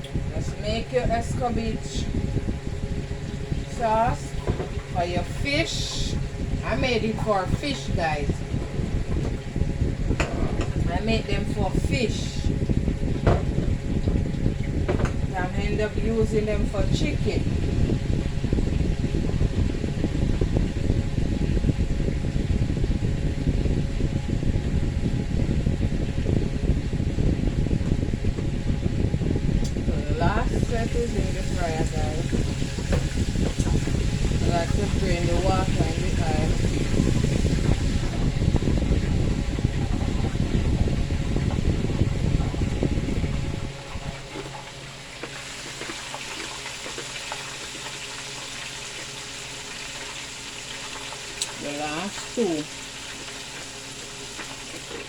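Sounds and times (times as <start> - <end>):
electric fan blowing: 0.0 - 55.0
chicken frying in hot oil: 29.7 - 55.0.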